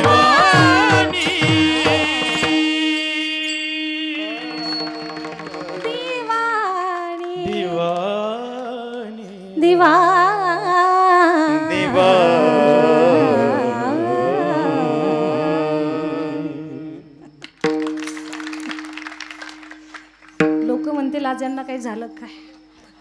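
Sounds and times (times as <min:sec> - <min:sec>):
person singing devotional song: 0:00.0 - 0:17.4
steady drone: 0:11.7 - 0:17.3.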